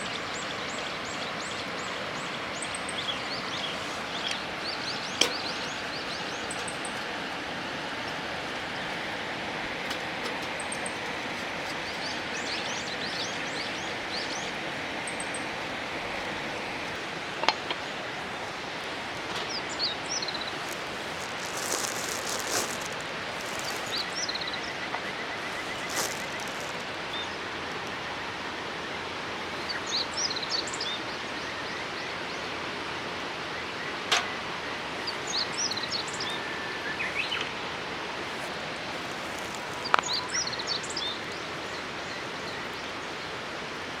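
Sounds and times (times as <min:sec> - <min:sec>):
river water flowing: 0:00.0 - 0:33.8, 0:34.5 - 0:44.0
small birds chirping: 0:10.6 - 0:15.7, 0:19.4 - 0:27.5, 0:35.0 - 0:37.5, 0:38.4 - 0:43.2.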